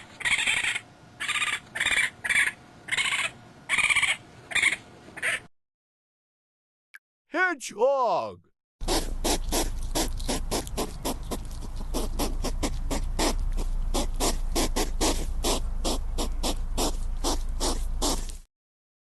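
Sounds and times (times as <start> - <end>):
hedgehog huffing: 8.8 - 18.5
low steady rumble: 8.9 - 18.4.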